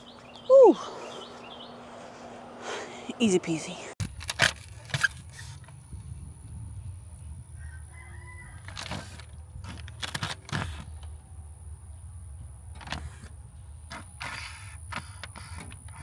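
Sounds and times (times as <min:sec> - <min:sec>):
low steady rumble: 0:05.5 - 0:10.1.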